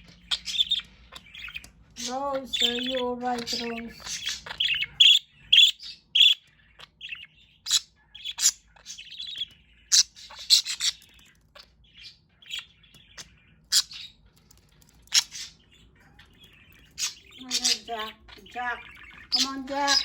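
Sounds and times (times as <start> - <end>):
budgies chirping: 0.0 - 20.0.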